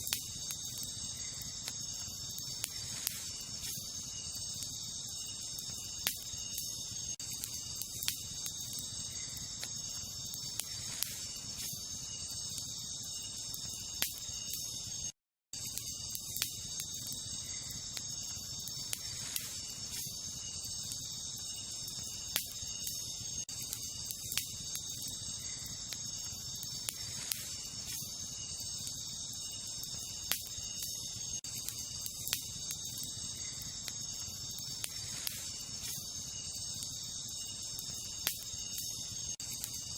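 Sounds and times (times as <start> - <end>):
wood fire crackling: 0.0 - 14.6, 15.6 - 39.9
insect chorus: 0.0 - 39.9.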